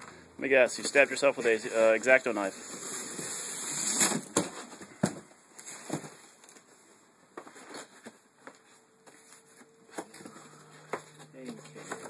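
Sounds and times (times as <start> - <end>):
cardboard packaging being opened: 1.5 - 6.6.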